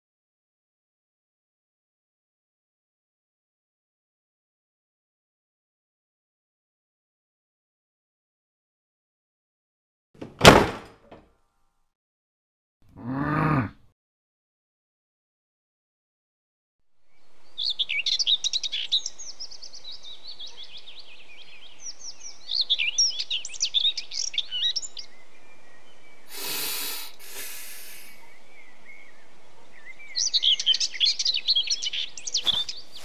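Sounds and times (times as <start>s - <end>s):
songbirds chirping and singing: 17.0s - 33.0s
short rushing noise bursts: 26.3s - 28.2s
footsteps: 32.4s - 33.0s.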